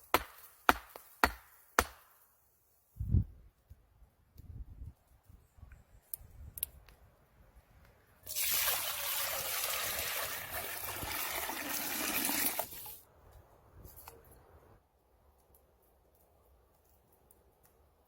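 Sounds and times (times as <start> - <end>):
liquid pouring: 8.3 - 13.0.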